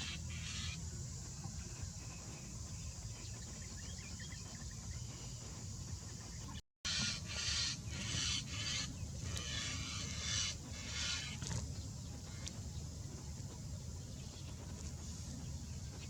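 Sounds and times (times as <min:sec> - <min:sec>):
steady low rumble: 0:00.0 - 0:16.0
bird squawking: 0:06.9 - 0:11.5.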